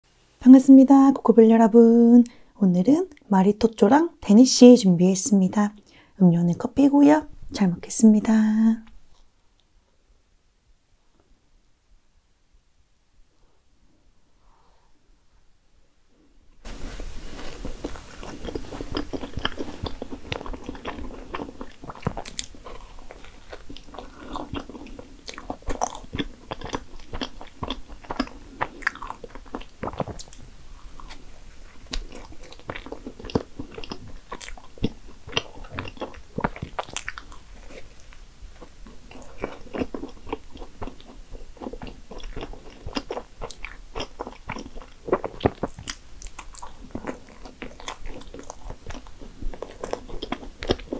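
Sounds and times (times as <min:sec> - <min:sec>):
person biting and chewing: 0:16.7 - 0:50.9.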